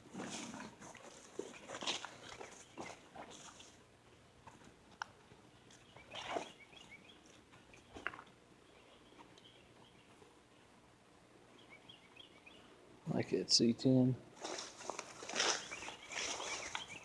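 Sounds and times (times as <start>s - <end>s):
distant birds chirping: 5.2s - 17.0s.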